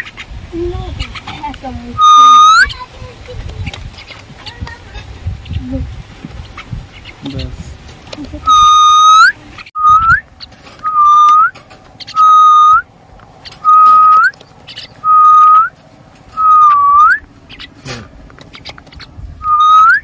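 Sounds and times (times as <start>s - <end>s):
loud whistled note flicking upward: 2.0s - 2.7s.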